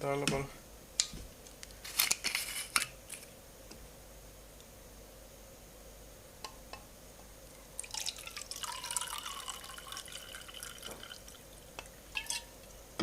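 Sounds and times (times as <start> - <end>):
water pouring into tank: 7.8 - 11.5.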